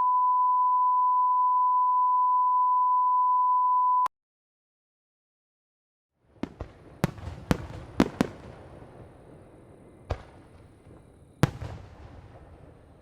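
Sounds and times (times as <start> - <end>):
sine test tone: 0.0 - 4.1.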